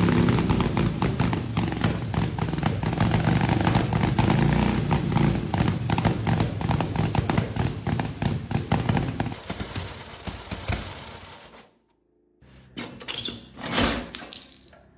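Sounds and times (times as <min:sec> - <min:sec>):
motorcycle exhaust popping: 0:00.0 - 0:11.4
motorcycle engine rumble: 0:00.0 - 0:11.6.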